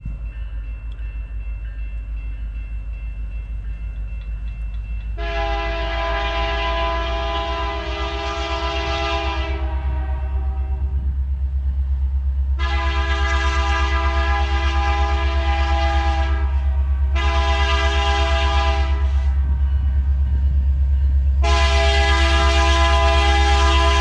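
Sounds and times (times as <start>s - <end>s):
train rumbling past: 0.0s - 24.0s
locomotive air horn: 5.2s - 11.0s, 12.6s - 19.7s, 21.4s - 24.0s.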